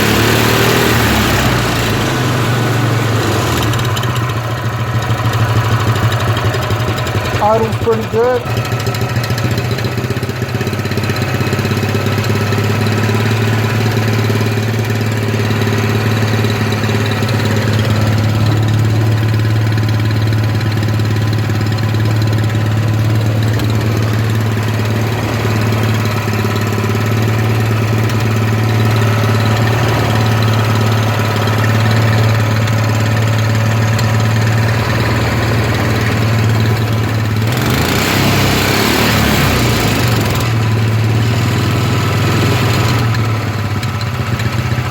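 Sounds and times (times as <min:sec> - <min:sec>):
four-stroke engine idling: 0:00.0 - 0:44.9.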